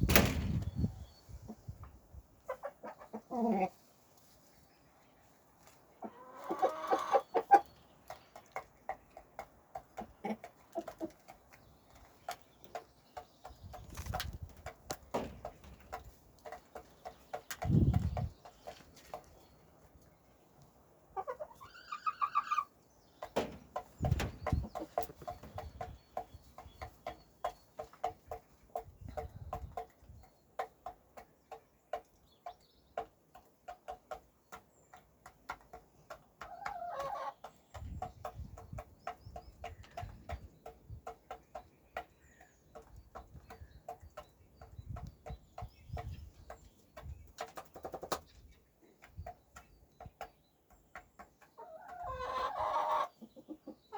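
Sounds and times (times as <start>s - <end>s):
low thumps: 0.0s - 0.9s
chicken clucking: 1.2s - 53.9s.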